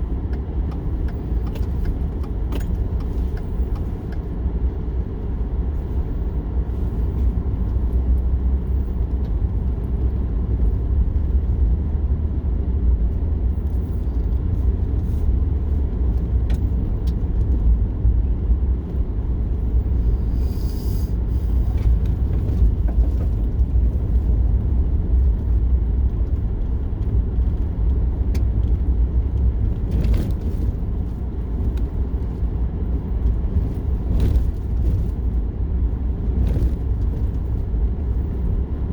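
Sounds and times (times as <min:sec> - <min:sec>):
car road rumble inside cabin: 0:00.0 - 0:38.9
brief hiss: 0:20.3 - 0:21.2.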